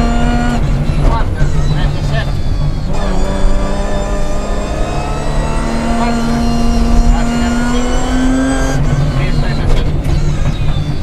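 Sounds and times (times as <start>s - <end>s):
rally car engine from inside cabin: 0.0s - 11.0s.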